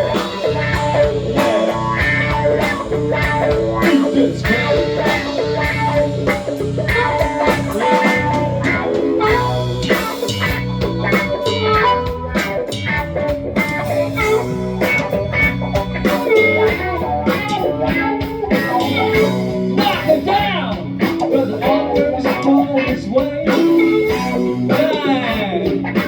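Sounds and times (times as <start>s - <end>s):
blues-rock band playing: 0.0s - 26.0s.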